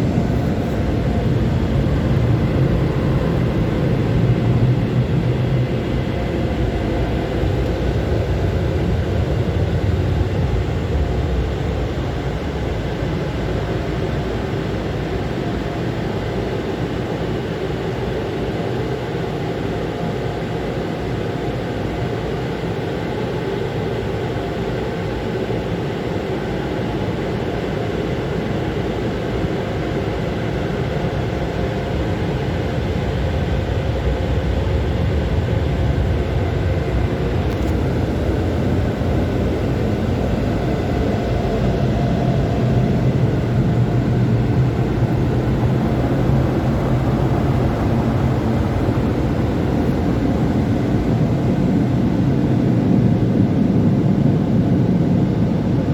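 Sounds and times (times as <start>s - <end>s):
automatic car wash rushing: 37.0s - 53.1s.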